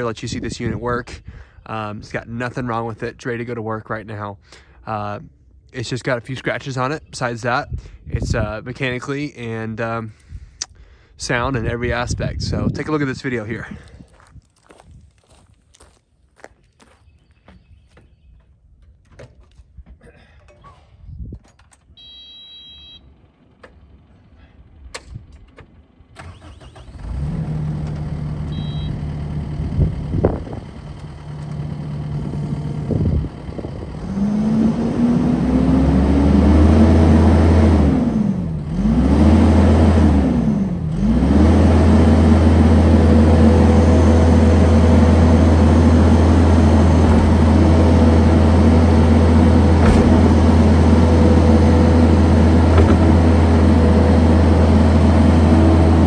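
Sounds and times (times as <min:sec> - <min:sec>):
diesel engine starting and idling: 0:22.0 - 0:56.0.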